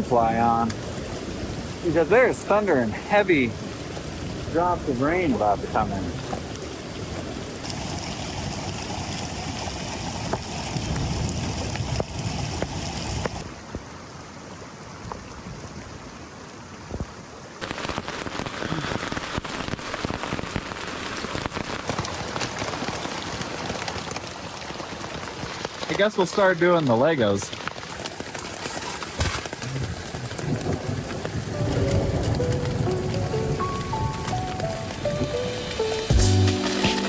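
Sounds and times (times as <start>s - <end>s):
heavy rain falling: 0.0s - 7.7s, 17.6s - 37.0s
raindrops ticking on a surface: 0.0s - 13.4s, 17.6s - 37.0s.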